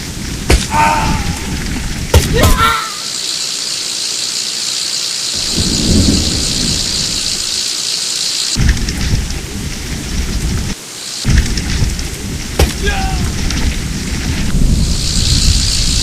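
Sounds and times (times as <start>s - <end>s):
wind rumbling on microphone: 0.0s - 2.7s, 5.3s - 7.6s, 8.5s - 16.0s
steady high hiss: 0.0s - 16.0s.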